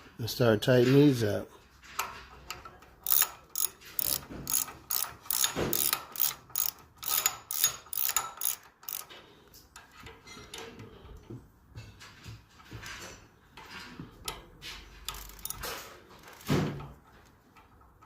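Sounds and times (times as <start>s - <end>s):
hand ratchet clicking: 2.6s - 9.2s, 15.0s - 18.0s.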